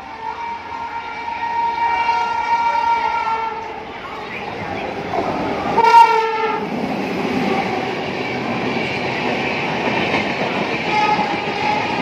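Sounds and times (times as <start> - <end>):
train horn: 0.0 - 3.8, 5.8 - 6.6, 10.9 - 12.0
train coaches rolling on rails: 0.0 - 12.0.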